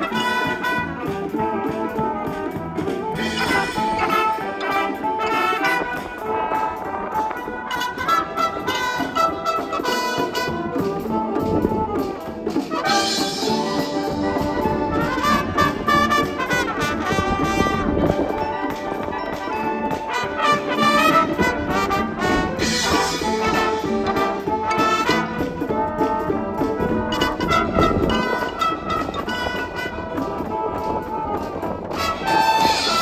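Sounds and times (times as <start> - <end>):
wind band playing: 0.0 - 33.0.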